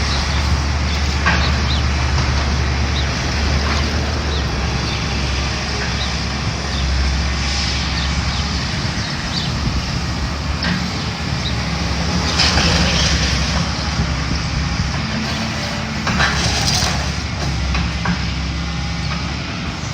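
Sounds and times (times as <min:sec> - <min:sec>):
demolition machinery engine drone: 0:00.0 - 0:19.9
debris crunching and clattering: 0:15.0 - 0:18.4.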